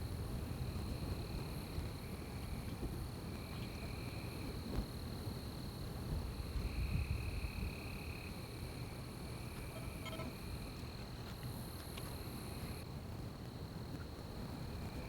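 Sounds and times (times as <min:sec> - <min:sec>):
lower insect trill: 0:00.0 - 0:12.8
high-pitched insect trill: 0:06.3 - 0:11.0.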